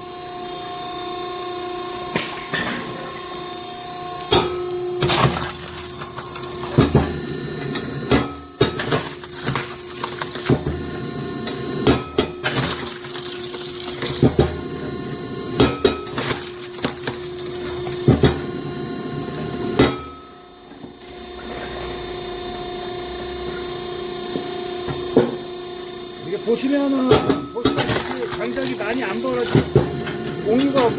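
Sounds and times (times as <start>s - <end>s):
hydraulic log splitter humming: 0.0s - 30.9s
wood pieces landing: 5.0s - 6.9s, 8.8s - 10.6s, 12.4s - 14.3s, 16.1s - 18.1s, 27.6s - 29.7s
wood splitting cracks: 5.0s - 6.9s, 8.8s - 10.6s, 12.4s - 14.4s, 16.1s - 18.2s, 27.7s - 29.8s.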